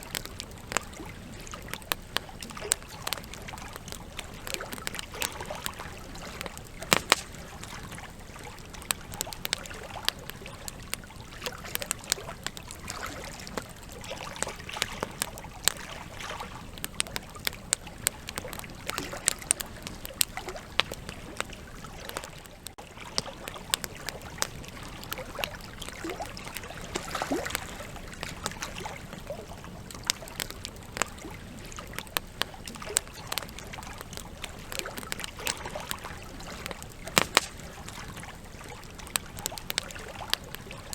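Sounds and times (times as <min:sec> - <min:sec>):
campfire crackling and popping: 0:00.0 - 0:40.9
fire hissing: 0:06.6 - 0:08.2, 0:34.6 - 0:38.6.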